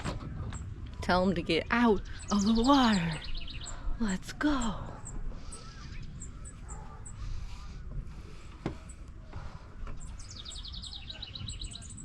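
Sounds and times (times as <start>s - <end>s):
small birds chirping: 0.0s - 12.0s
bird trill: 1.6s - 7.8s, 10.0s - 12.0s.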